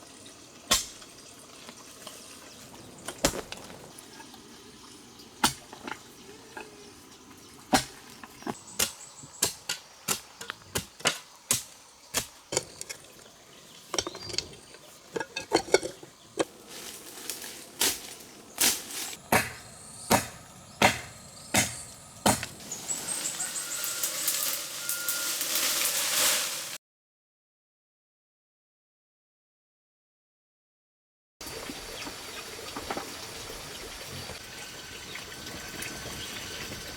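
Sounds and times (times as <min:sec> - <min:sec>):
sharp knocks: 0:19.3 - 0:22.6.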